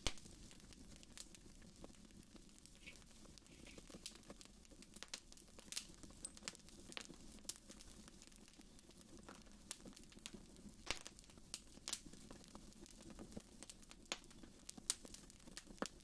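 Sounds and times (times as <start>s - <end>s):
low rumble of flames: 0.0s - 16.0s
sharp fire pops: 0.0s - 16.0s
wood fire crackling: 0.0s - 16.0s.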